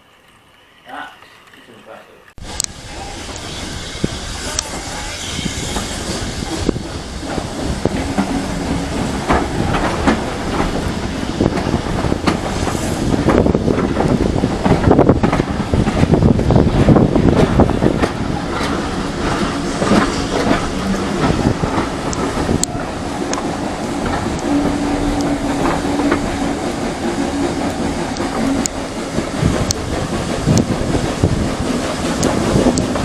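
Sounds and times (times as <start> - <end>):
model train wheels clicking: 16.9 - 33.0.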